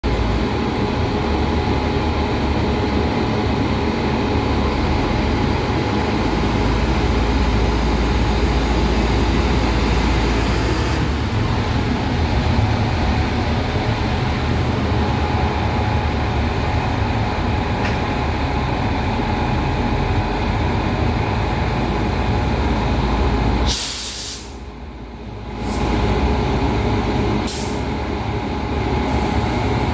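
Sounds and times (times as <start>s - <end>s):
railway machine drone: 0.0s - 29.9s
short hiss: 23.7s - 24.6s.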